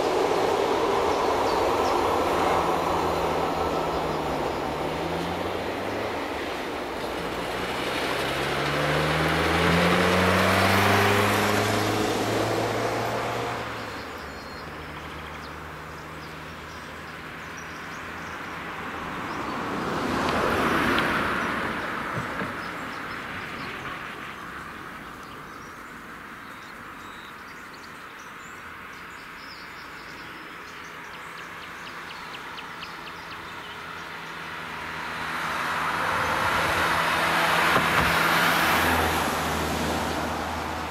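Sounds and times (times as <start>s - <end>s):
engine accelerating through gears: 0.0s - 16.0s
vehicle passing by: 0.0s - 25.0s, 30.8s - 40.9s.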